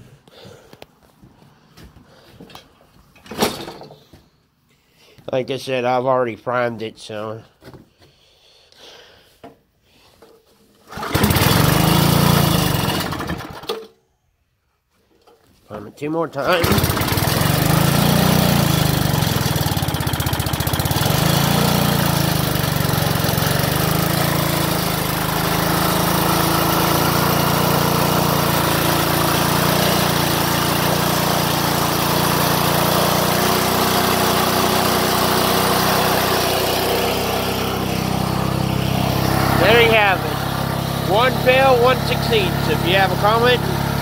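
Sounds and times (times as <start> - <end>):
small engine running: 10.9 - 13.9, 16.5 - 44.0.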